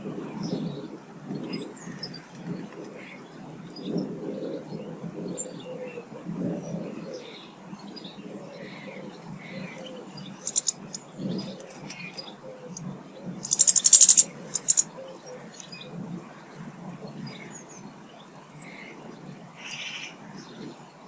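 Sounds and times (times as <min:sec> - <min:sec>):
small birds chirping: 0:06.7 - 0:21.0
harsh chattering bird ticks: 0:10.4 - 0:15.0.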